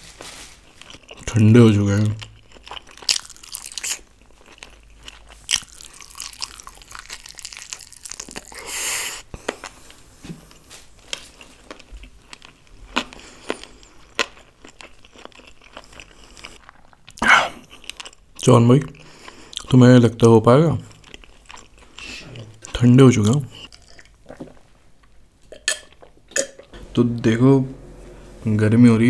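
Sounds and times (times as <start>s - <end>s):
wet chewing with crunches: 2.2s - 10.0s, 11.0s - 19.8s, 20.8s - 25.2s.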